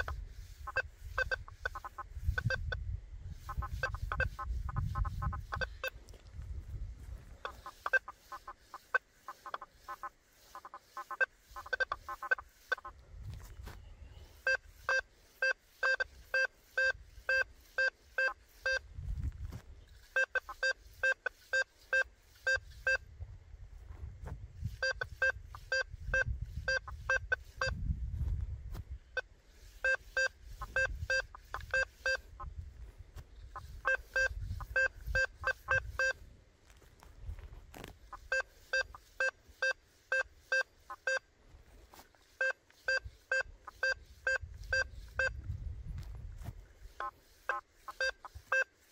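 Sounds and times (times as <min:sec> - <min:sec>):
metal detector beeps: 0:00.0 - 0:06.0, 0:07.4 - 0:12.9, 0:14.3 - 0:18.9, 0:19.9 - 0:23.1, 0:24.7 - 0:27.8, 0:29.0 - 0:32.4, 0:33.4 - 0:36.2, 0:38.1 - 0:41.3, 0:42.3 - 0:45.5, 0:46.9 - 0:48.9.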